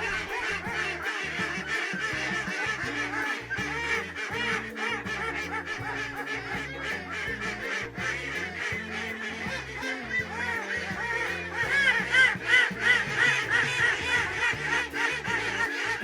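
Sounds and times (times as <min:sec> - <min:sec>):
ducks quacking: 0:00.0 - 0:16.0
music with stepping bass line: 0:00.0 - 0:16.0.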